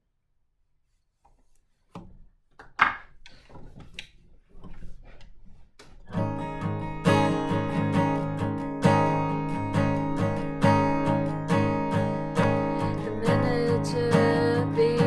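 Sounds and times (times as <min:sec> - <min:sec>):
acoustic guitar strumming chords: 0:06.1 - 0:15.0.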